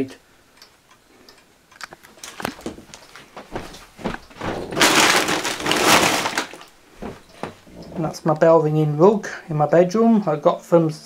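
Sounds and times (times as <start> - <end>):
knocks and clicks: 1.8 - 8.1
loud rustling scrape: 4.3 - 8.1.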